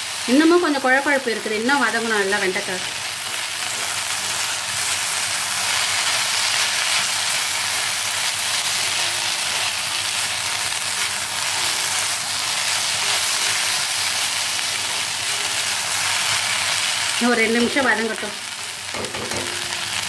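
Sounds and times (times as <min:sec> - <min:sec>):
okra sizzling in hot oil: 0:00.0 - 0:20.0
spatula stirring: 0:03.2 - 0:17.2.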